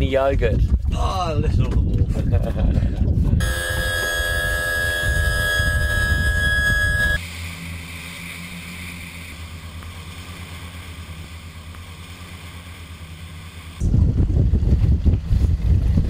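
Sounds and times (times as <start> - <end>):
loud high steady tone: 3.4 - 11.8
outboard motor running: 3.4 - 13.9.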